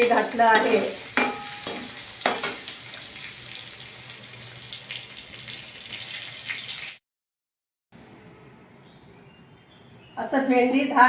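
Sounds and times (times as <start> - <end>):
metal spatula clinking on pan: 0.0 - 2.8
spatula scraping pan: 0.0 - 3.0
okra sizzling in oil: 0.0 - 7.0.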